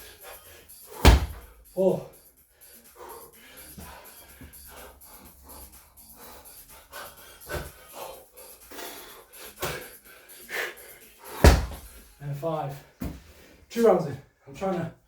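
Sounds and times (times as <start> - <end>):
man breathing hard: 0.0 - 12.2, 12.8 - 13.7
slam ball hitting floor: 1.0 - 1.5, 11.4 - 11.9.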